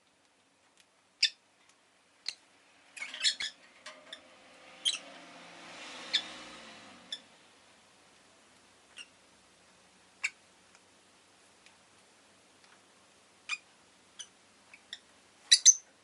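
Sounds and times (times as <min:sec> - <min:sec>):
faint background noise: 0:00.0 - 0:16.0
lovebird chirping: 0:01.2 - 0:01.4, 0:03.0 - 0:03.6, 0:04.8 - 0:05.1, 0:13.5 - 0:15.9.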